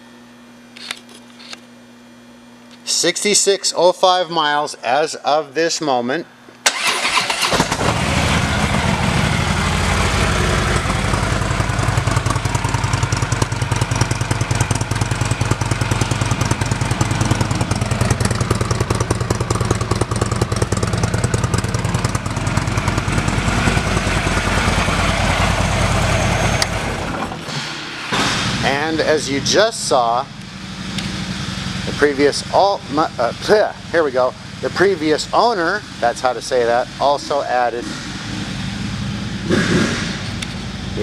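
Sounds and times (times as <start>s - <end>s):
motorcycle engine idling: 7.8s - 27.1s, 29.8s - 39.4s.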